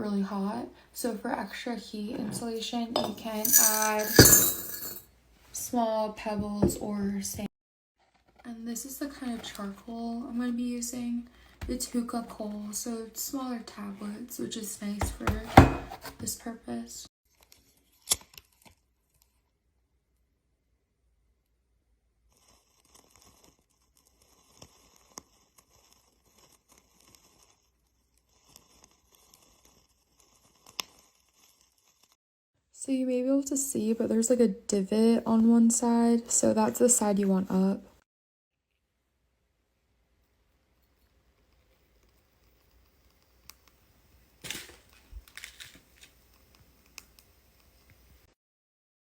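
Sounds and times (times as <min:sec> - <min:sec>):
charcoal tablets clattering: 0:03.0 - 0:05.0, 0:44.4 - 0:46.3
wrapping tearing and crinkling: 0:44.4 - 0:46.4.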